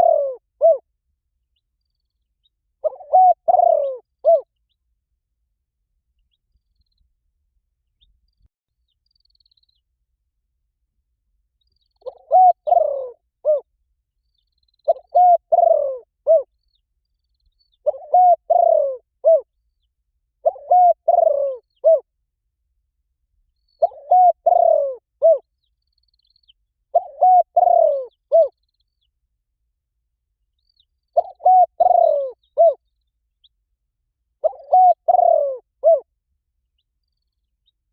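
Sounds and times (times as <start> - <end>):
dove cooing: 0.0 - 0.8, 2.8 - 4.5, 12.0 - 13.7, 14.9 - 16.5, 17.8 - 19.5, 20.4 - 22.1, 23.8 - 25.4, 26.9 - 28.6, 31.2 - 32.8, 34.4 - 36.1.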